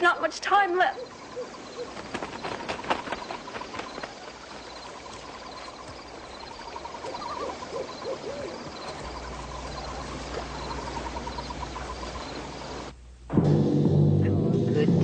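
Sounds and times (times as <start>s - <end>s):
owl hooting: 0.7s - 12.9s
fast even chirping: 0.8s - 12.9s
low steady hum: 6.1s - 15.0s.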